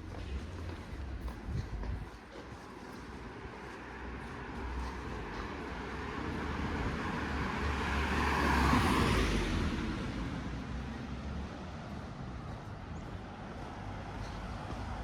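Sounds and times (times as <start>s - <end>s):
vehicle passing by: 4.1s - 15.0s.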